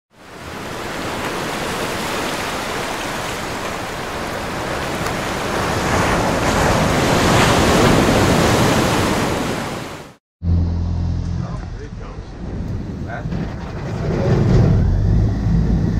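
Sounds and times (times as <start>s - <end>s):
wind and water rushing: 0.1s - 10.2s.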